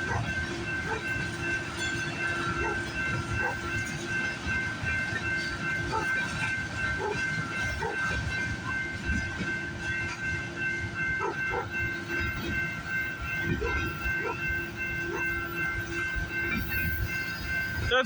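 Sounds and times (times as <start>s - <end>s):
freight train rumbling past: 0.0s - 18.0s
steady high-pitched tone: 11.5s - 18.0s.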